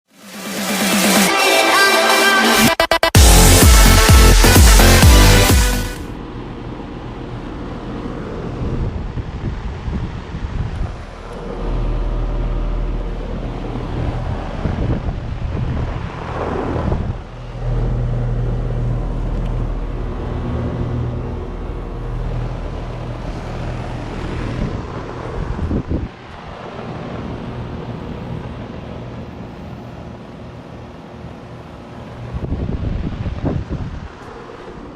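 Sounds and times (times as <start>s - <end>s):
compressor hum: 3.1s - 34.9s
condenser fan whooshing: 3.1s - 34.9s
wind on microphone: 8.3s - 29.0s, 32.2s - 34.9s.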